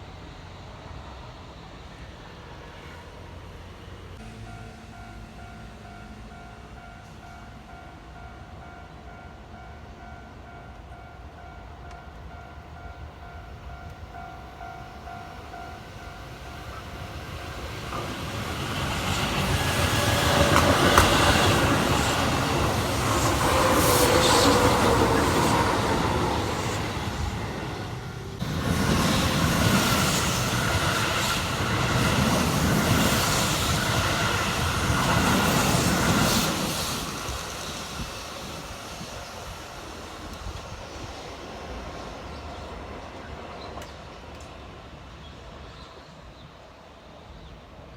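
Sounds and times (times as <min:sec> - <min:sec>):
electric train passing: 0:00.0 - 0:47.9
wheels on rails: 0:13.8 - 0:44.7.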